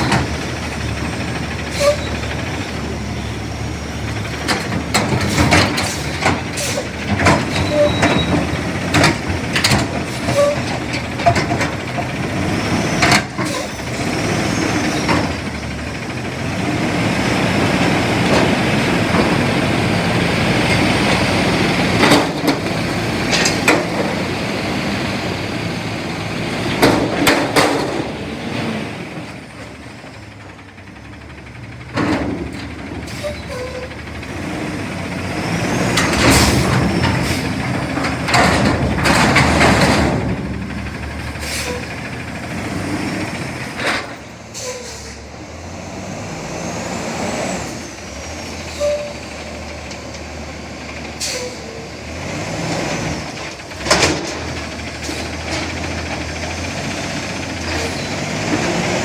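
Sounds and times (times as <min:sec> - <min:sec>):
garbage truck engine running: 0:00.0 - 0:59.0
metallic bangs and clanks: 0:36.0 - 0:42.8
air-brake hisses: 0:41.4 - 0:42.1.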